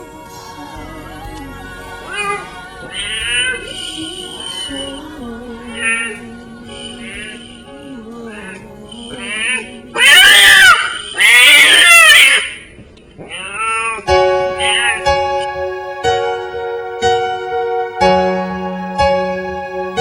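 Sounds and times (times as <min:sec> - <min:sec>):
background music: 0:00.0 - 0:10.9, 0:14.1 - 0:20.0
piano: 0:00.0 - 0:12.8, 0:13.8 - 0:20.0
cat mewing: 0:10.0 - 0:15.0.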